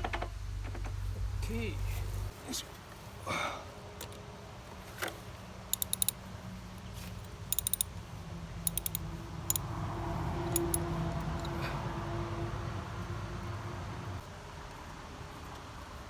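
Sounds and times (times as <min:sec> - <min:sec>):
low steady hum: 0:00.0 - 0:14.3
metal tools clicking: 0:05.7 - 0:06.3, 0:07.1 - 0:08.0, 0:08.6 - 0:09.7, 0:10.4 - 0:11.6.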